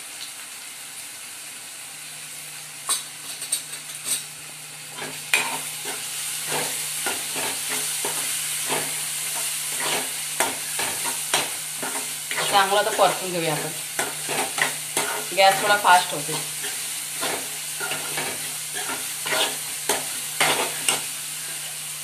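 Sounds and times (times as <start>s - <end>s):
masala sizzling in oil: 0.0s - 22.0s
metal spatula scraping a pan: 5.0s - 21.7s.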